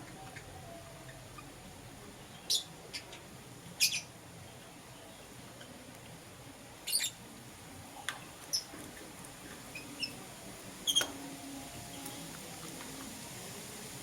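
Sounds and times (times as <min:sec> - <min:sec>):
lovebirds chirping: 0:00.0 - 0:05.9, 0:06.8 - 0:07.3, 0:08.0 - 0:08.8, 0:09.6 - 0:13.2.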